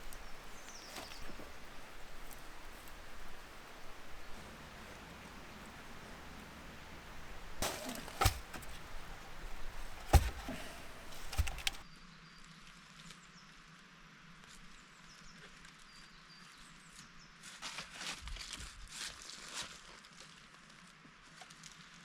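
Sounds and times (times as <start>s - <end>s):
wood cracking and snapping: 0.0s - 11.8s.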